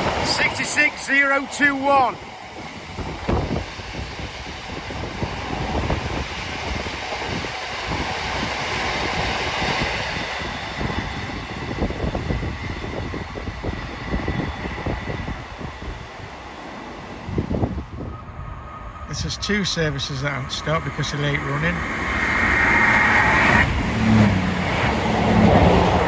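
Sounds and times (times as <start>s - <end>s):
diesel locomotive rumble: 0.0s - 26.0s.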